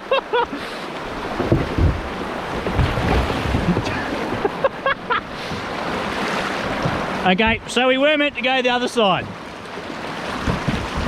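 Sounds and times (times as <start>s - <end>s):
rushing river water: 0.0s - 11.0s
wind buffeting microphone: 9.2s - 11.0s.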